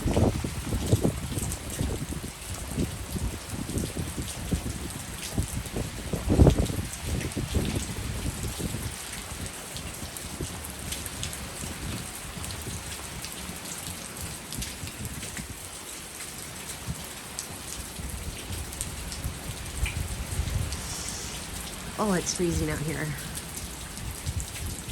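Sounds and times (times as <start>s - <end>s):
steady rain falling: 0.0s - 24.9s
raindrops ticking: 17.4s - 24.9s.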